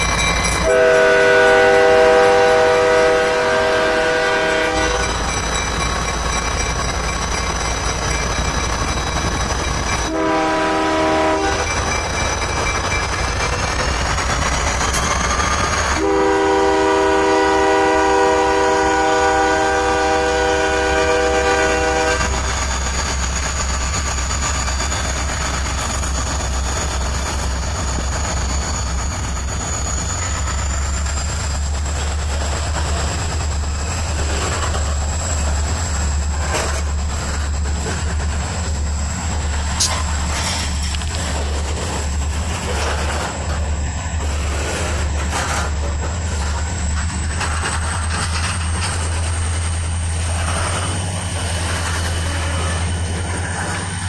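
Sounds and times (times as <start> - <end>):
train cars clanking: 0.0 - 54.0
locomotive air horn: 0.6 - 5.2, 10.1 - 11.7, 16.0 - 22.5, 52.2 - 52.8.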